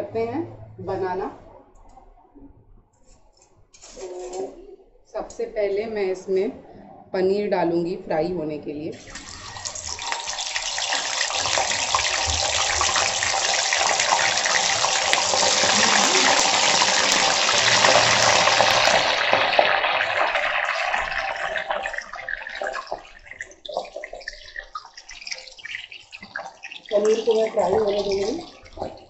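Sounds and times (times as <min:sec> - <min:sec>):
paneer sizzling in hot oil: 0:09.0 - 0:29.0.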